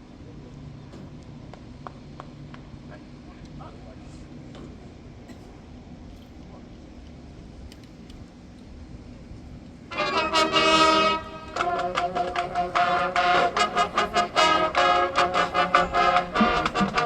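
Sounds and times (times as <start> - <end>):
marching band brass playing: 9.9 - 17.0.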